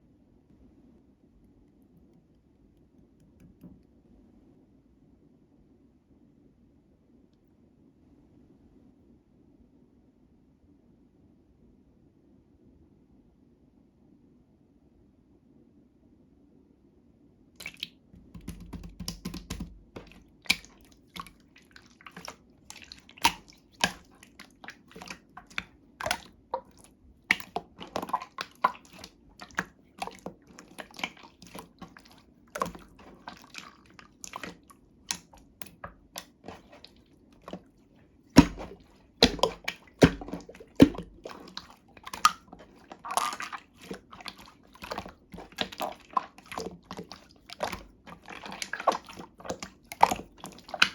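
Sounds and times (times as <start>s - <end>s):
slime squished by hand: 17.6s - 50.9s.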